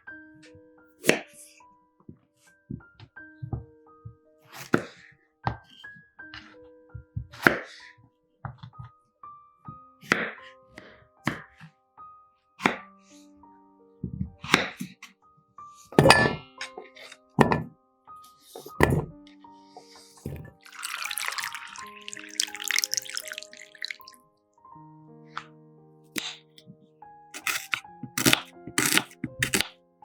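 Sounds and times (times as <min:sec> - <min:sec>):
soft background music: 0:00.0 - 0:30.0
knife chopping on cutting board: 0:11.3 - 0:11.5, 0:27.4 - 0:29.7.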